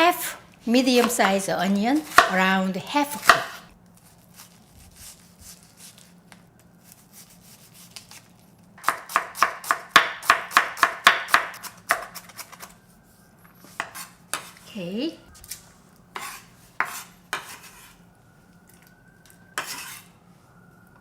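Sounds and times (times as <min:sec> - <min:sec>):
knife chopping on cutting board: 0:02.0 - 0:02.4, 0:03.2 - 0:03.6, 0:08.8 - 0:12.7, 0:13.7 - 0:14.6, 0:16.2 - 0:17.9.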